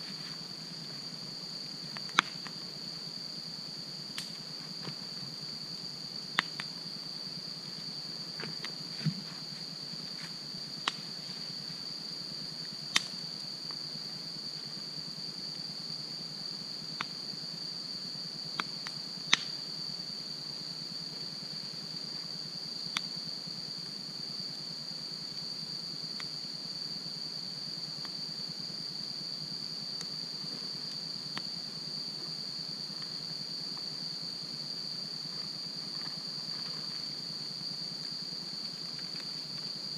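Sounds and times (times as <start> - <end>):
crickets chirring: 0.0 - 39.9
campfire crackling and popping: 1.9 - 2.5, 4.2 - 4.4, 12.9 - 13.2, 18.6 - 19.5.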